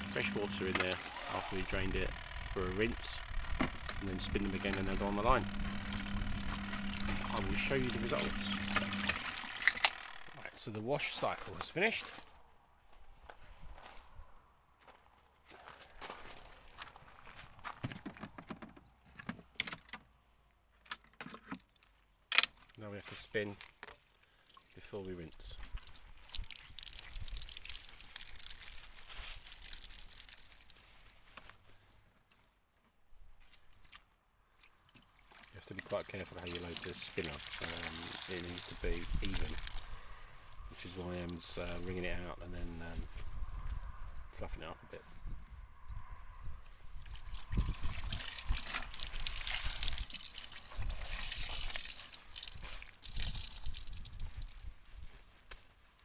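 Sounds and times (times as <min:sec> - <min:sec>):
wet laundry being wrung out: 0:00.0 - 0:10.5, 0:25.7 - 0:31.4, 0:34.7 - 0:42.0, 0:47.0 - 0:56.0
water splashing and dripping: 0:25.7 - 0:31.1, 0:34.6 - 0:40.0, 0:47.1 - 0:56.0.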